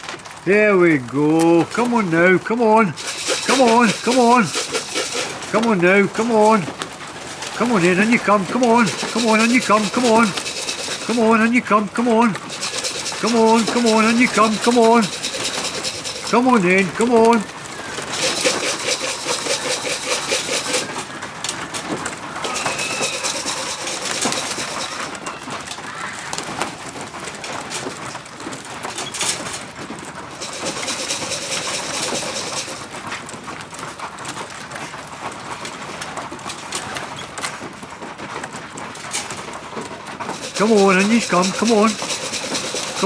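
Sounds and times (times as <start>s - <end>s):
rapid rattling: 1.3s - 25.6s, 30.2s - 33.2s, 40.2s - 43.0s
pigeons cooing: 2.9s - 21.4s, 22.1s - 26.6s.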